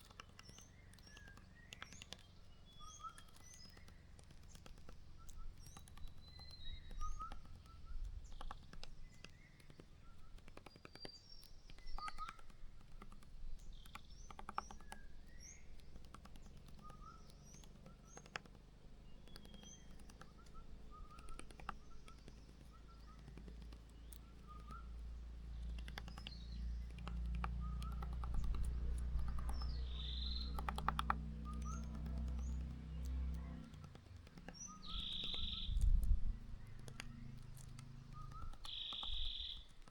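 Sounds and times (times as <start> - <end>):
small birds chirping: 0.0 - 39.9
low steady rumble: 12.4 - 39.9.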